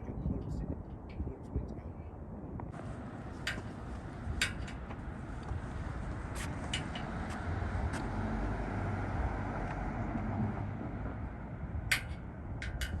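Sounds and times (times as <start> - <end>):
car engine and road noise: 2.7 - 13.0.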